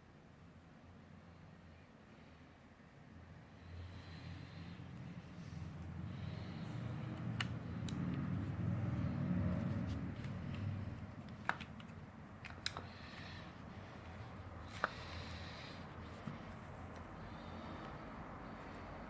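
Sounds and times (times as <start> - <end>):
desk fan running: 3.2 - 19.0.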